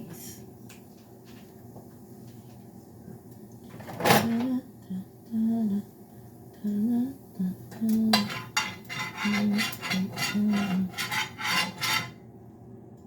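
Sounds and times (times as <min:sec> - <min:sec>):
woman humming: 0:04.4 - 0:05.9, 0:06.6 - 0:08.1
utensil scraping frying pan: 0:08.1 - 0:12.2.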